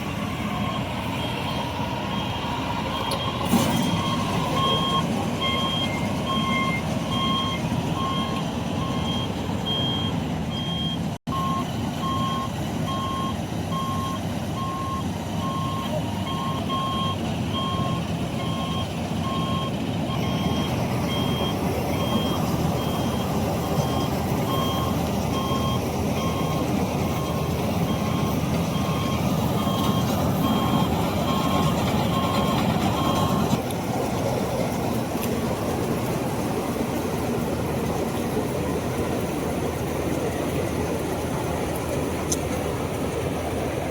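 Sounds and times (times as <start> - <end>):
diesel engine running: 0.0 - 43.9
two-tone reversing alarm beeping: 0.4 - 33.6.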